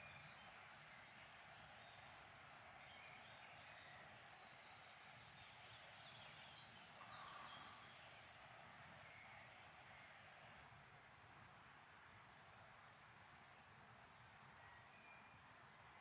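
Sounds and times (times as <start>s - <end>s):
soft steady hiss: 0.0s - 16.0s
birds singing: 2.3s - 8.3s.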